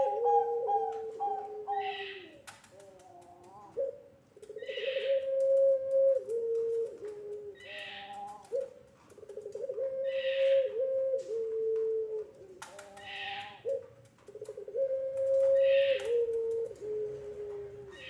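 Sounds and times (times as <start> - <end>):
dove cooing: 0.0 - 18.0.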